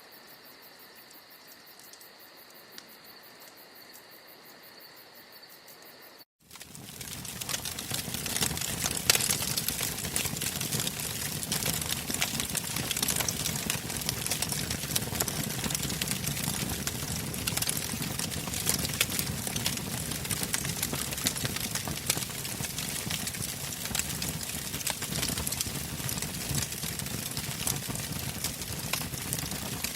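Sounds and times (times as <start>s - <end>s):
fire crackling and popping: 6.4s - 29.9s
flames rushing: 6.5s - 29.9s.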